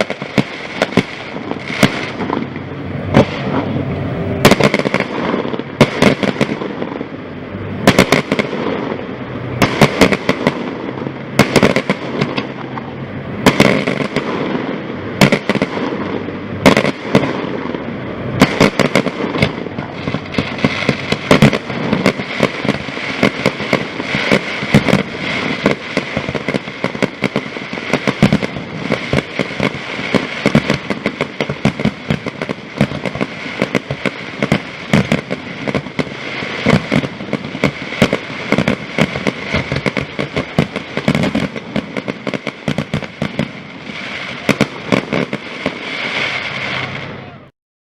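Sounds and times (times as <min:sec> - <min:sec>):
loud firework booms: 0:00.0 - 0:47.4
fireworks bangs and crackles: 0:00.0 - 0:47.5.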